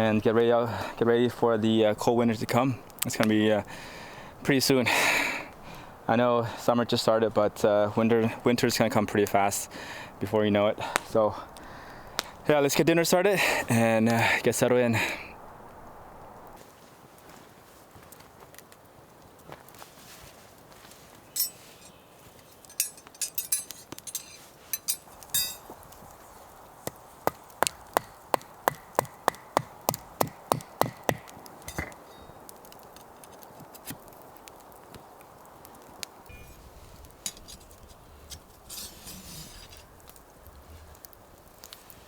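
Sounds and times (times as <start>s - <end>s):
light handling clinks: 21.3s - 25.8s, 31.7s - 32.3s, 36.3s - 39.9s.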